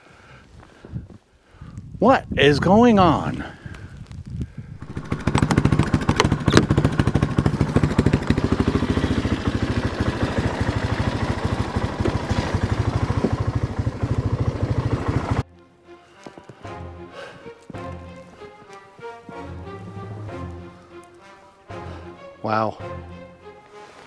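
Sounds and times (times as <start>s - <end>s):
small engine puttering: 4.8s - 15.4s.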